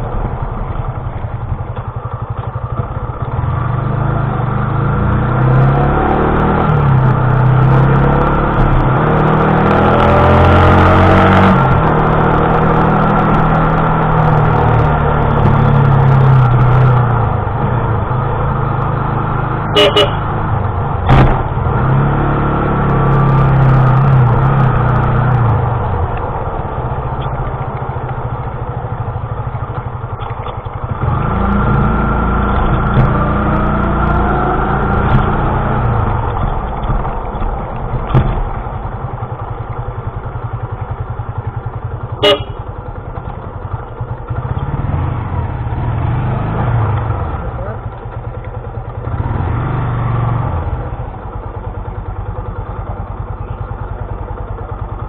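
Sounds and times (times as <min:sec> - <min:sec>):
motorcycle engine accelerating: 0:00.0 - 0:55.0
road and wind noise: 0:00.0 - 0:55.0
sharp knocks: 0:38.0 - 0:38.6.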